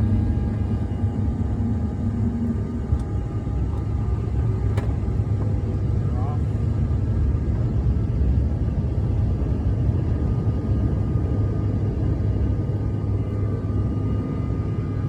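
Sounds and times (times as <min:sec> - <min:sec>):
faint whining tones: 0:00.0 - 0:06.7
jet engines rumbling: 0:00.0 - 0:15.0.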